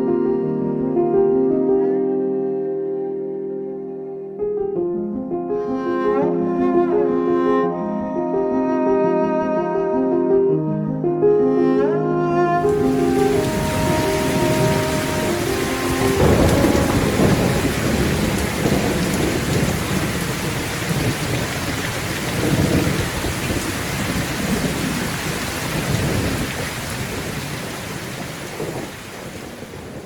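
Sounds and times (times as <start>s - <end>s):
heavy rain: 12.6s - 30.0s
thunder rumbling: 12.6s - 30.0s.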